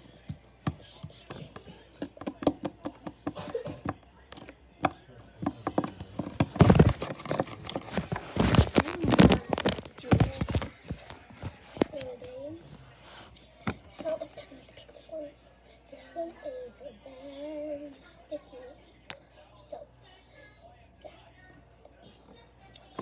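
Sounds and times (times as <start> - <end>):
slime squelching: 5.7 - 12.1.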